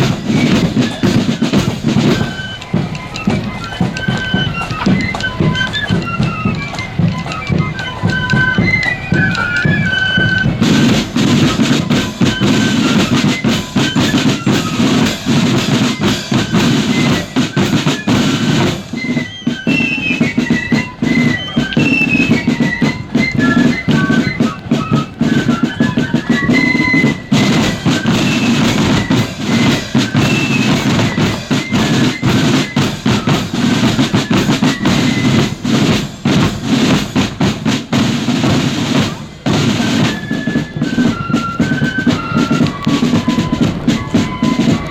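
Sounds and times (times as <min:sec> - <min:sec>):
high flute melody: 0:00.0 - 0:44.9
snare and bass drums: 0:00.0 - 0:44.9.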